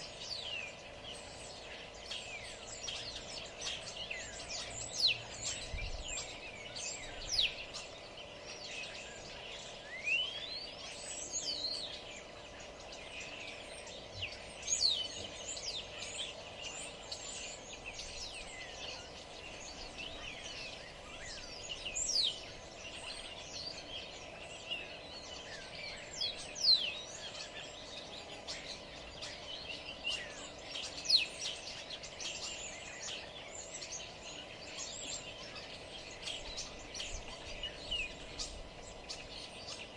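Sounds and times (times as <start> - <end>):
birds chirping and singing: 0.0 - 39.9
faint steady background hum: 0.0 - 39.9.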